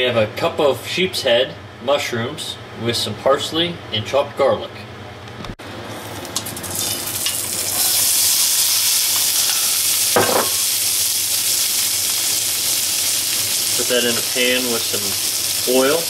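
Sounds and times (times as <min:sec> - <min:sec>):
mushrooms sizzling in hot oil: 0:06.0 - 0:16.0.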